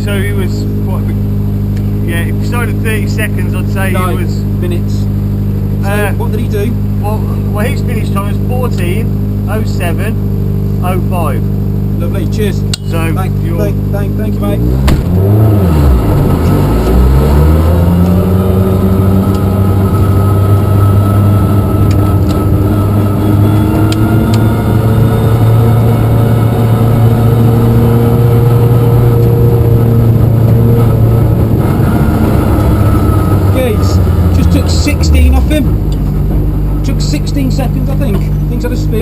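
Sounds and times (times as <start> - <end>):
car engine pulling away: 11.5 - 39.0.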